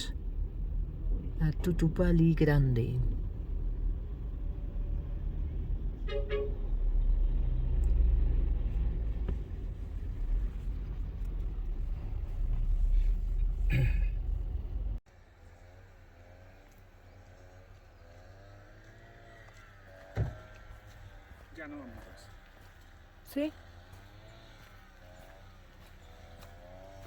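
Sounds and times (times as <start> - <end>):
vehicle road rumble: 0.0 - 27.0
short horn toot: 6.0 - 6.7.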